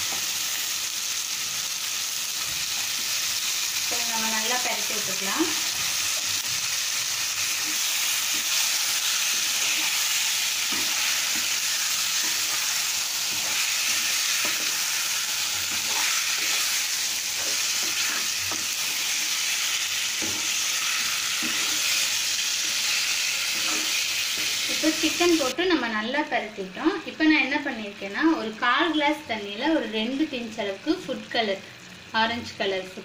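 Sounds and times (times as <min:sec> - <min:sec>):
chicken sizzling in oil: 0:00.0 - 0:25.6
spatula scraping pan: 0:07.4 - 0:25.0.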